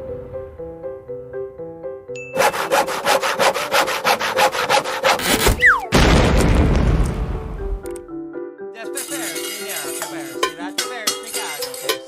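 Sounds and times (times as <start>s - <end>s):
falling whistle: 5.6s - 5.9s
loud boom: 5.9s - 7.6s.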